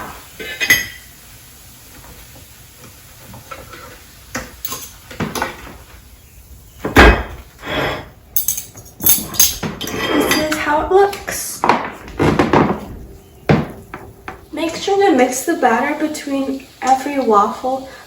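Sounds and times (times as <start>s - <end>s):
loud thump: 6.9s - 7.4s, 11.6s - 15.0s.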